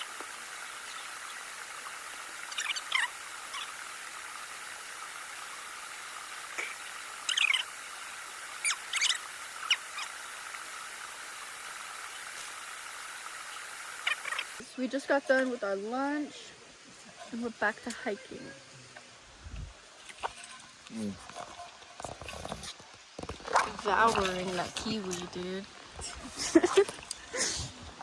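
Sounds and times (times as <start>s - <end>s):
birds chirping: 0.0s - 14.6s
steady outdoor hiss: 0.0s - 28.0s.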